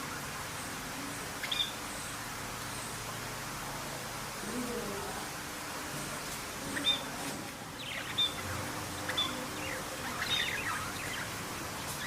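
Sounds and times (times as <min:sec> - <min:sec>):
small birds chirping: 0:00.0 - 0:03.1, 0:06.0 - 0:12.0
background hiss: 0:00.0 - 0:12.0.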